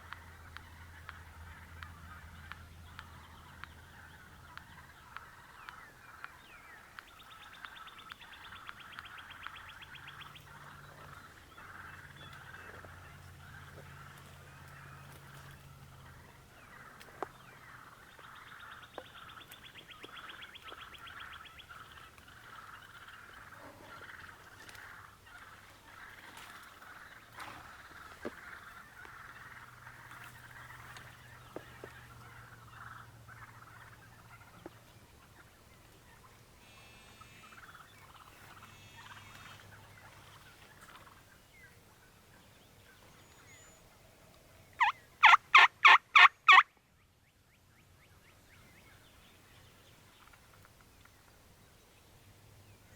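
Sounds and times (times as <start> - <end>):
turkeys gobbling: 0.0 - 46.8
rapid rattling call: 44.8 - 46.6.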